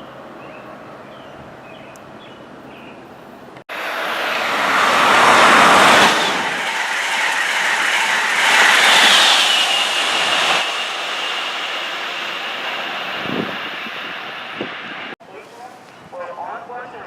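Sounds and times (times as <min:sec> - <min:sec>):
electric train passing at speed: 0:03.7 - 0:15.2
high steady whine: 0:03.7 - 0:15.2.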